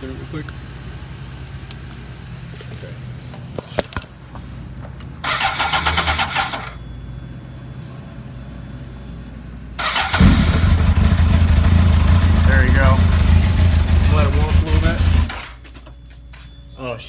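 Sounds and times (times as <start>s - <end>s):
motorcycle starter cranking: 5.2s - 6.8s, 9.8s - 15.6s
motorcycle engine running: 9.8s - 15.6s.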